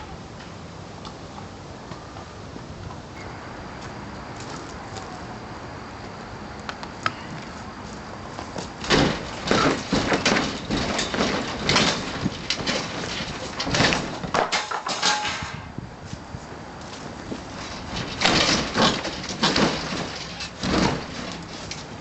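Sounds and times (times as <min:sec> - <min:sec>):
wood cracking and debris crashing: 0:08.8 - 0:15.3, 0:17.5 - 0:21.6.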